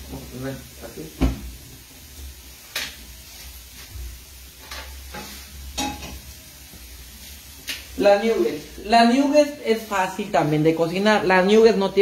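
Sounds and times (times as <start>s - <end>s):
potato sizzling in a pan: 0.0s - 12.0s
pans knocking on stove: 4.6s - 6.2s.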